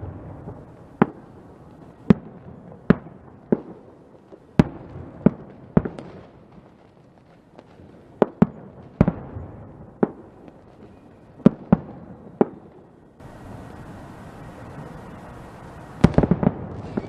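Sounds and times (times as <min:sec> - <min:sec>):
crackly echo: 0:00.0 - 0:17.0
fireworks bangs: 0:00.0 - 0:17.0
steady hiss: 0:12.2 - 0:17.0.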